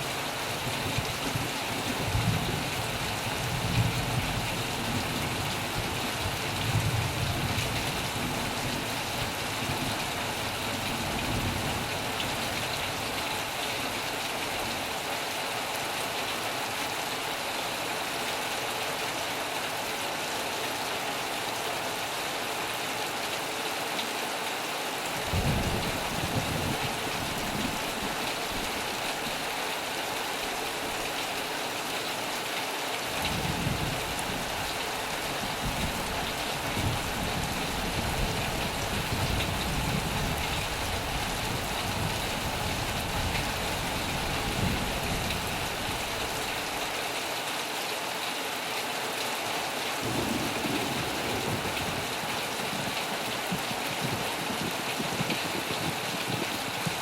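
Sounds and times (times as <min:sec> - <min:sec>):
heavy rain on a metal roof: 0:00.0 - 0:57.0
low thunder rumbles: 0:25.3 - 0:28.2, 0:50.0 - 0:52.9.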